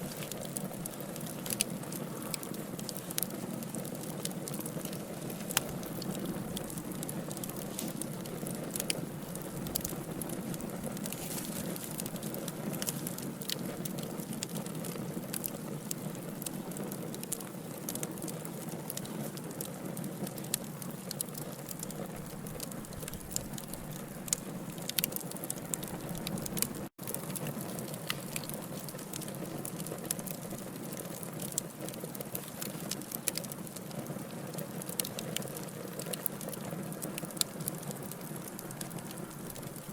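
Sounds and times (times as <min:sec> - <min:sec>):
flames hissing: 0:00.0 - 0:16.9
wood crackling and popping: 0:00.0 - 0:39.9.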